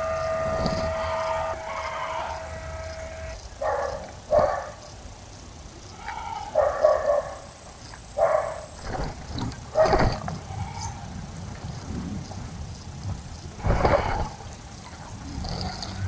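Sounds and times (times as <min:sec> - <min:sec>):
dog barking: 0:03.6 - 0:04.9, 0:06.5 - 0:07.5, 0:08.2 - 0:10.2.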